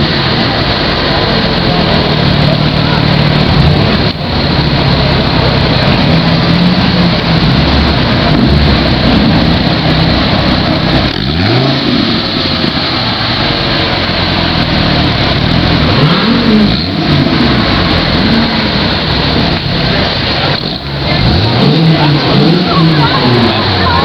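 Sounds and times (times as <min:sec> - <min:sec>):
sports car engine revving: 0:00.0 - 0:24.0.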